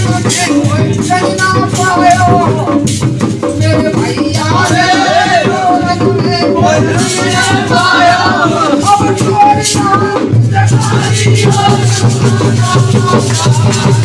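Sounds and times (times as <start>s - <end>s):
deep drum: 0.0s - 14.0s
jingling shaker percussion: 0.0s - 14.0s
folk song music: 3.4s - 14.0s.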